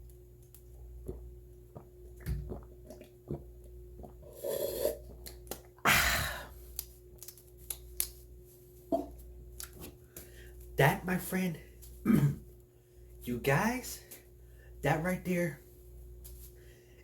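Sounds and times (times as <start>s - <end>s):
wet swallowing clicks: 0.5s - 4.4s, 5.0s - 5.8s
person gulping: 0.8s - 6.6s.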